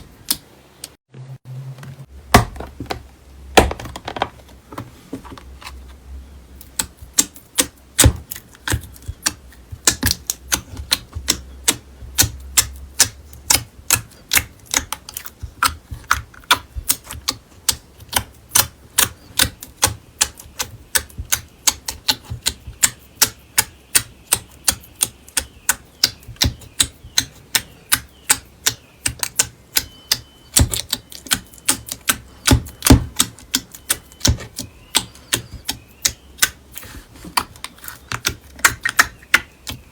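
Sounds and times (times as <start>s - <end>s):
slime clicking and popping: 6.6s - 36.7s.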